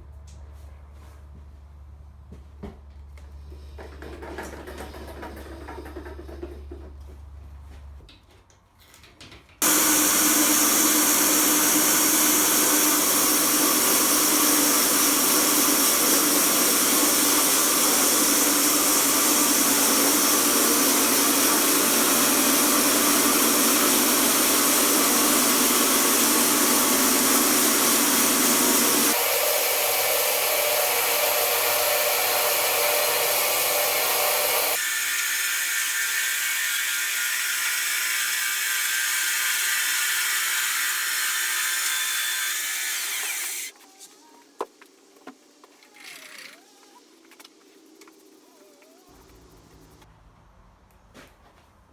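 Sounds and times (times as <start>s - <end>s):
powered saw cutting log: 9.6s - 43.8s.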